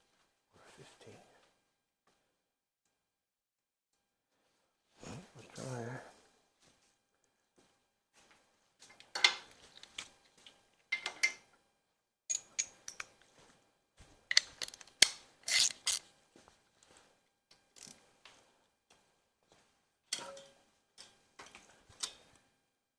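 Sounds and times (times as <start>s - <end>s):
metallic tool clinks and knocks: 12.3s - 13.2s
ratchet wrench clicking: 15.5s - 16.0s.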